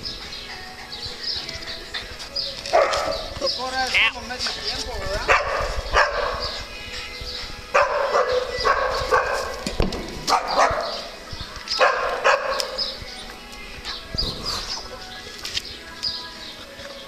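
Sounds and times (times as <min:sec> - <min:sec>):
small dogs barking: 0:02.7 - 0:03.4, 0:05.2 - 0:06.7, 0:07.7 - 0:09.6, 0:10.2 - 0:11.2, 0:11.8 - 0:12.9.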